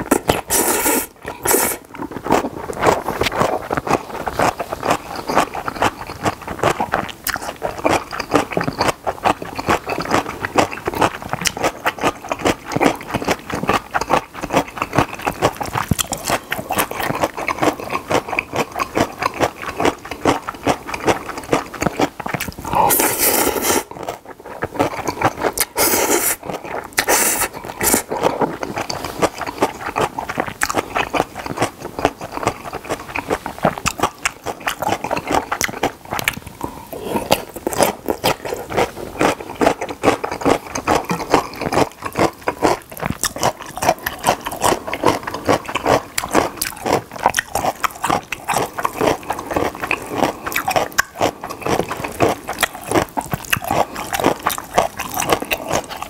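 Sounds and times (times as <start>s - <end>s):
slurping noodles: 0.0s - 5.9s, 22.4s - 24.0s, 24.6s - 30.4s
wet chewing and mouth smacking: 0.0s - 56.0s.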